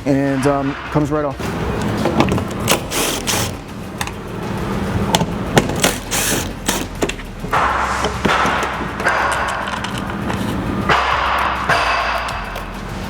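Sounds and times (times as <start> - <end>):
scraping rub: 1.4 - 11.8.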